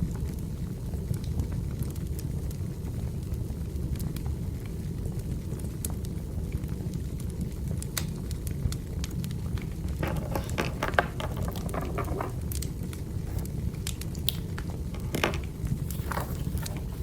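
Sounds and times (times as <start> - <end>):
wood fire crackling: 0.2 - 17.0.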